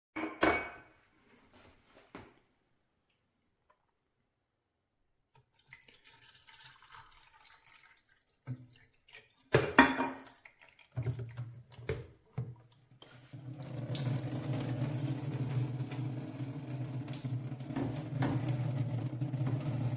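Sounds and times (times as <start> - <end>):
water trickling and dripping: 5.4 - 9.6, 10.2 - 19.9.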